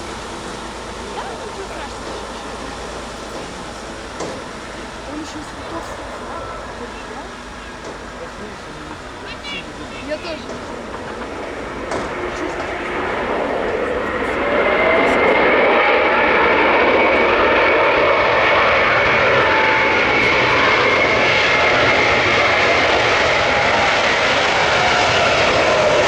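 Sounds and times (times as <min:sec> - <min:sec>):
jet plane passing: 0:00.0 - 0:26.0.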